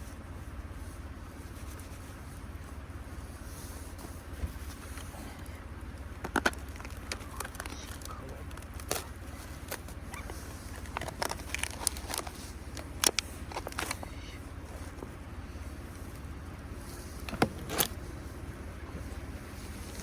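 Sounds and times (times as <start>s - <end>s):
steady low rumble: 0.0s - 20.0s
sharp clicks and light knocks: 6.0s - 14.1s, 17.2s - 18.0s.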